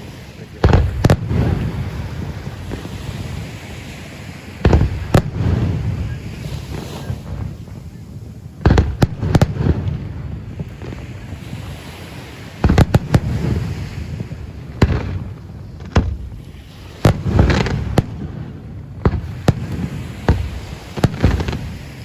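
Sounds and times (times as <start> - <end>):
firework shells bursting: 8.6 - 11.2, 12.6 - 22.0.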